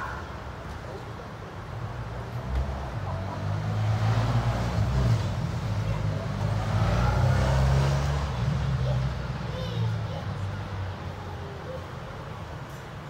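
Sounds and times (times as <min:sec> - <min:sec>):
car engine running low revs: 0:03.4 - 0:09.2.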